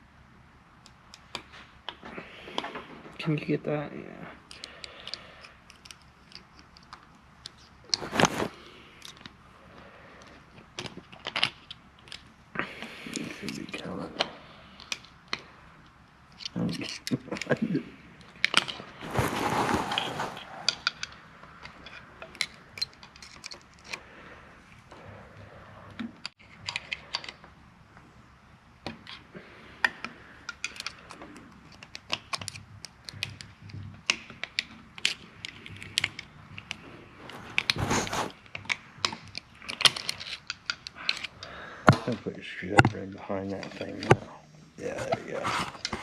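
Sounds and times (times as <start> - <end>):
scuffling: 7.9 - 8.6, 18.8 - 20.9, 37.2 - 38.4.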